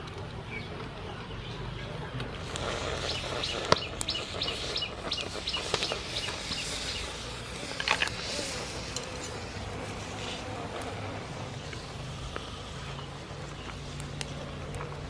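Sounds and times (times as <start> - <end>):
bird chirping: 0.4 - 7.8
sharp clicks: 2.2 - 7.0, 13.6 - 14.9.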